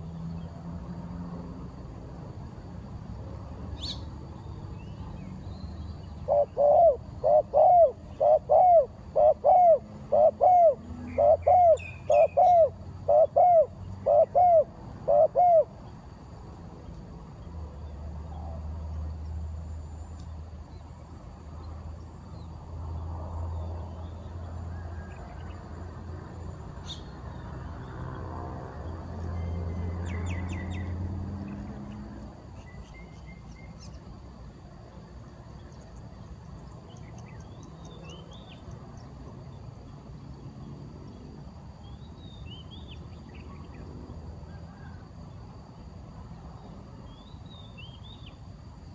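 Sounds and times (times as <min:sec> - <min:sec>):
birds chirping: 0:03.8 - 0:15.6
bird hooting: 0:06.2 - 0:15.8.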